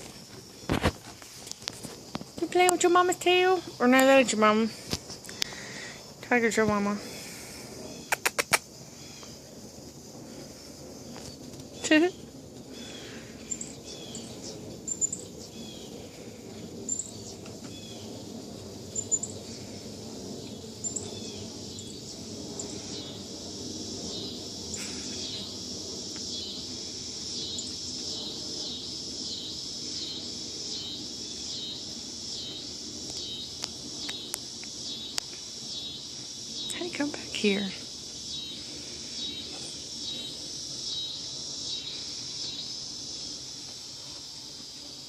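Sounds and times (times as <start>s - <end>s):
pulsing insect chorus: 0.0s - 45.0s
bird chirping: 11.0s - 16.0s, 27.3s - 42.8s.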